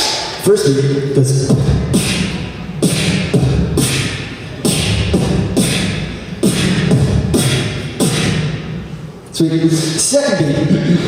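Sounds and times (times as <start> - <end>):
beatboxing kick drums: 1.2 - 8.8
beatboxing hissing snare: 1.8 - 8.6.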